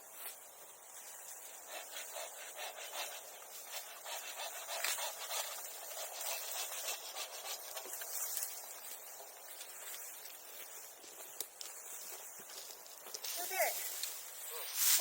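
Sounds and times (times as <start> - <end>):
dry grass and sticks rustling: 0.0 - 15.0.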